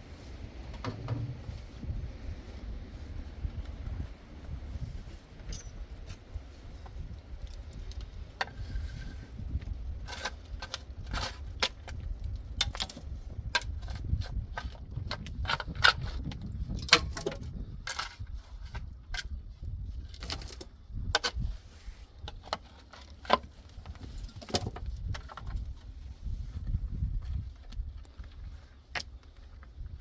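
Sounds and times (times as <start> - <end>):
steady low rumble: 0.0 - 20.1.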